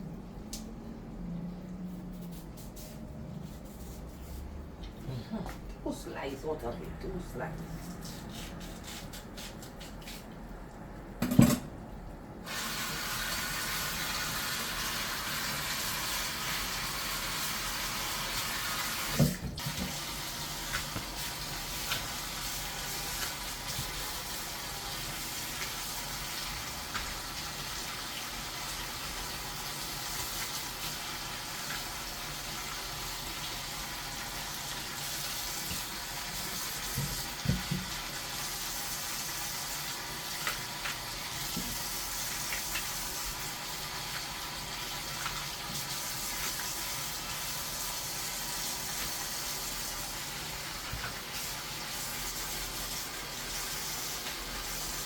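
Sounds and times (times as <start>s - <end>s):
water running from tap: 12.4s - 55.0s.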